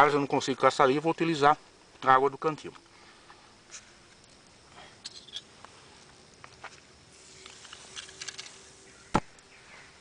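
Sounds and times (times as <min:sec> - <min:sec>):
small ticks: 0:02.7 - 0:08.7
chemical reaction crackling and fizzing: 0:03.6 - 0:08.9.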